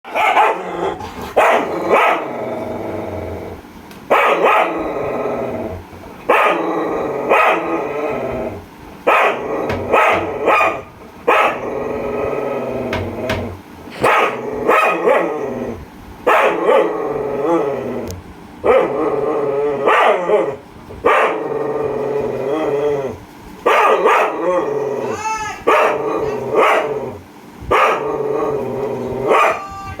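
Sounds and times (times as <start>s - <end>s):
dog barking: 0.0s - 0.7s, 1.4s - 2.3s, 4.1s - 4.8s, 6.3s - 6.6s, 7.3s - 7.7s, 9.1s - 11.6s, 14.0s - 15.4s, 16.3s - 17.0s, 18.7s - 18.9s, 19.8s - 21.4s, 23.7s - 24.4s, 25.7s - 27.0s, 27.7s - 28.1s, 29.3s - 29.7s
dog growling: 0.4s - 3.6s, 4.6s - 5.8s, 6.5s - 10.8s, 11.4s - 13.6s, 14.2s - 15.9s, 16.6s - 20.6s, 21.3s - 23.2s, 25.7s - 27.2s, 27.9s - 29.6s.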